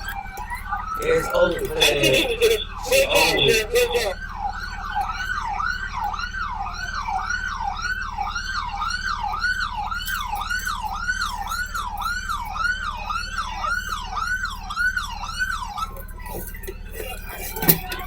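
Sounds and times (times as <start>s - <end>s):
steady low hum: 0.0s - 4.2s
police siren yelping: 0.0s - 18.0s.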